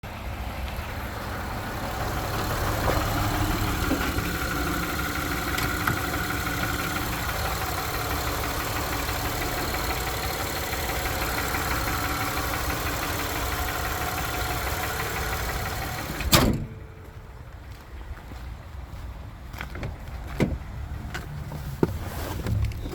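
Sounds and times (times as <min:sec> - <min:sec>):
car engine idling: 0:00.0 - 0:17.8
loud thump: 0:16.2 - 0:16.9.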